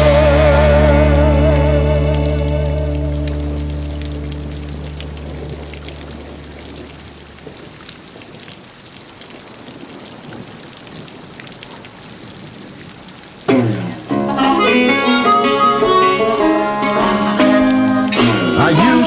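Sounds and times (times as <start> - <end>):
low song notes ringing: 0.0 - 7.4, 13.5 - 19.0
steady rain falling: 0.0 - 19.0.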